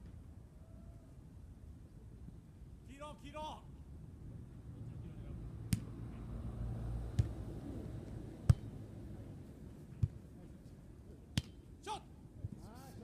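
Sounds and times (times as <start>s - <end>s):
volleyball being struck: 8.4s - 8.8s.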